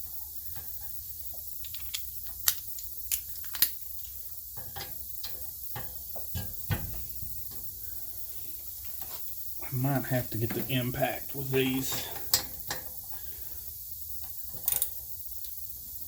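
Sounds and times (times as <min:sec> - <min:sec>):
hand tools clinking on metal: 0:10.0 - 0:12.9.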